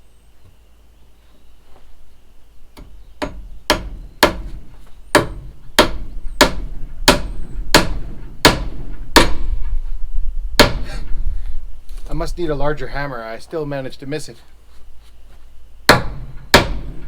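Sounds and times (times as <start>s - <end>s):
hammer striking: 2.8s - 9.7s, 10.6s - 11.1s, 15.9s - 17.0s.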